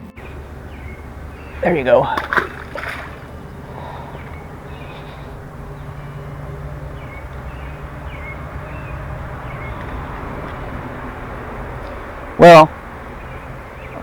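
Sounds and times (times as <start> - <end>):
bird chirps: 0.0 - 14.0
low outdoor rumble: 0.0 - 14.0.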